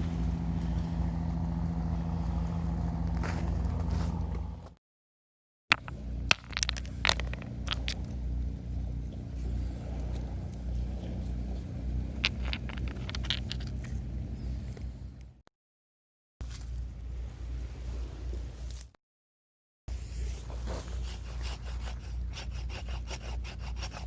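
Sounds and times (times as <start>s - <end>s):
steady low rumble: 0.0s - 4.8s, 5.7s - 15.4s
objects clicking and scraping: 5.7s - 15.0s.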